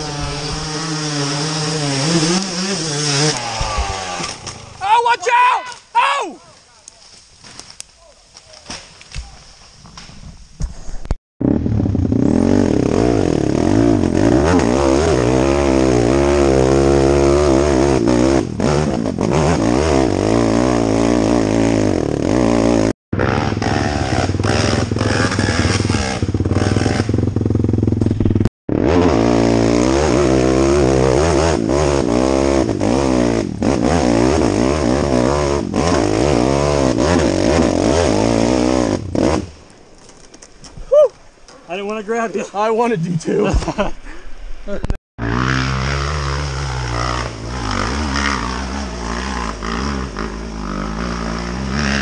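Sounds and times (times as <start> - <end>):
motorcycle engine revving: 0.0 - 4.8, 11.4 - 39.6, 45.2 - 52.0.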